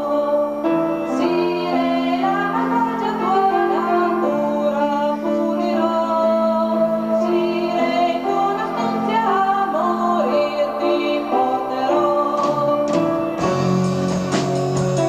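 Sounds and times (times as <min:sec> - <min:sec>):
rock band playing live: 0:12.4 - 0:15.0.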